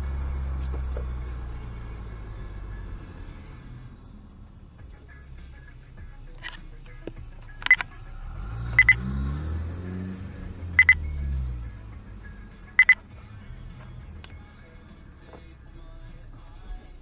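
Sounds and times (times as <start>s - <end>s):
vehicle engine: 0.0s - 17.0s
high electronic double beep: 8.8s - 9.1s, 10.8s - 11.3s, 12.8s - 13.0s.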